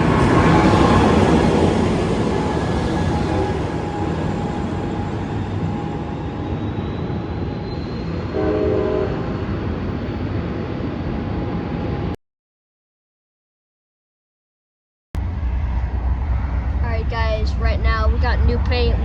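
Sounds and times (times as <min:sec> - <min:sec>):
train wheels rumbling on rail: 0:00.0 - 0:12.1, 0:15.2 - 0:19.0
train horn blast: 0:08.3 - 0:09.3.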